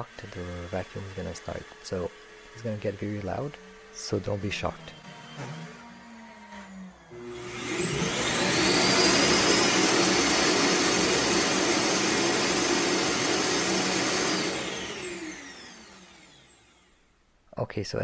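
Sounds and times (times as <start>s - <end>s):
motor winding down whine: 0.0s - 17.0s
suction motor rush of air: 5.0s - 17.0s.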